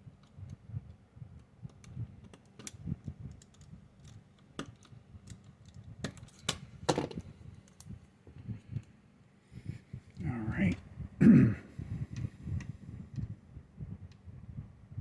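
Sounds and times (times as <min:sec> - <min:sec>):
small plastic parts snapping: 0:01.7 - 0:08.0.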